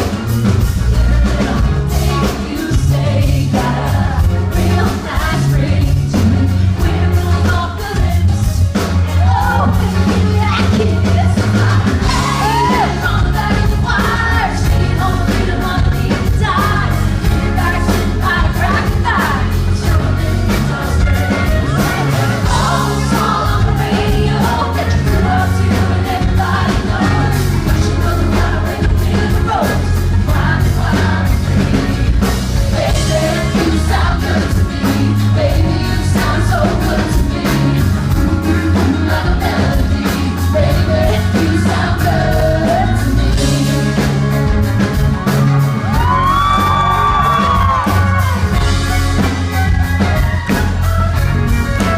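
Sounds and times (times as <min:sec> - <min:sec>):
drum beat: 0:00.0 - 0:51.9
live pop-country band: 0:00.0 - 0:51.9
woman singing: 0:01.0 - 0:08.4, 0:09.2 - 0:20.8.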